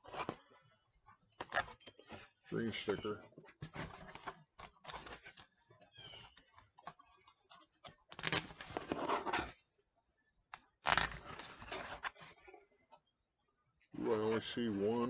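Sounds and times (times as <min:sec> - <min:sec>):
packaging tearing: 0:08.1 - 0:09.2, 0:10.8 - 0:11.6.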